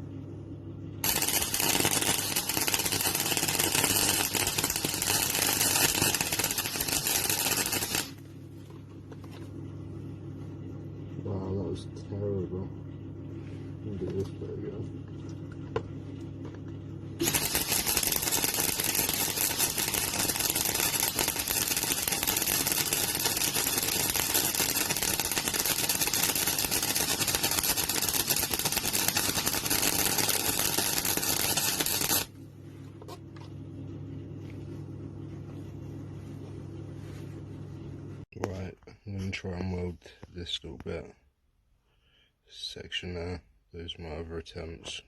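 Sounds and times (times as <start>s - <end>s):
steady low hum: 0.0s - 45.0s
welder arc crackling: 1.0s - 8.2s, 17.2s - 32.3s.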